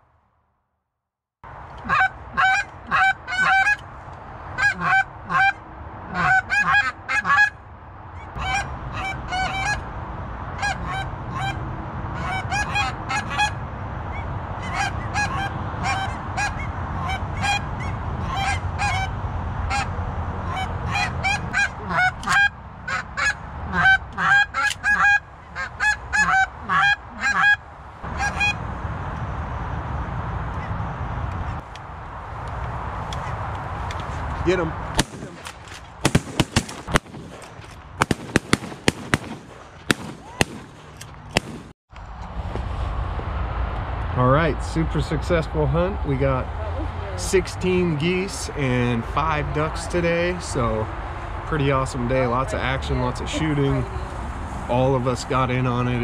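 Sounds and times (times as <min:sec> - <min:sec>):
geese honking in flight: 0:01.8 - 0:03.8, 0:04.6 - 0:07.6, 0:08.4 - 0:09.9, 0:10.6 - 0:28.6
steady low noise: 0:25.2 - 0:46.6.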